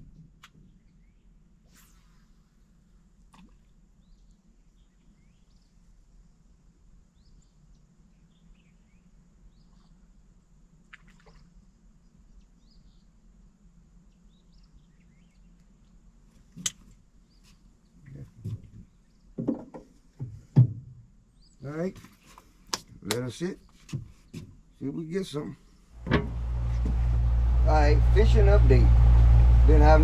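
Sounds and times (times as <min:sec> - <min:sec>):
low steady hum: 0:25.9 - 0:30.0.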